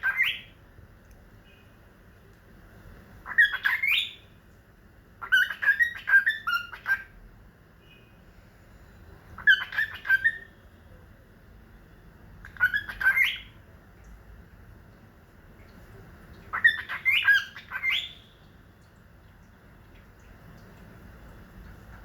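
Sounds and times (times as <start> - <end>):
pet bird squawking and chirping: 0.0 - 0.5, 3.2 - 4.2, 5.2 - 7.2, 9.4 - 10.6, 12.4 - 13.6, 16.5 - 18.4.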